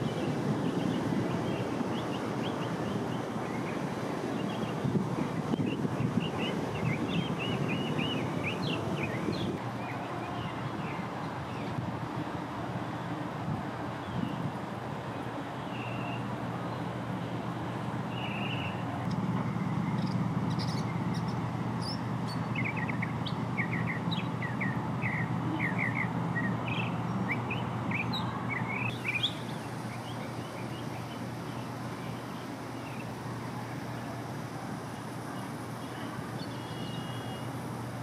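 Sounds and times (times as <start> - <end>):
bird chirping: 5.5 - 11.7, 15.6 - 16.3, 18.1 - 19.2, 19.8 - 33.2, 35.8 - 37.5.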